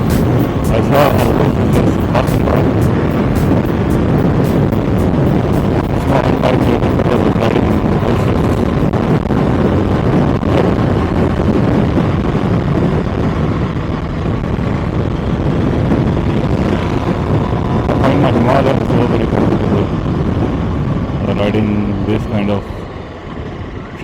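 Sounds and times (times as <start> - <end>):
motorcycle engine running: 0.0 - 9.8
wind on microphone: 0.0 - 24.0.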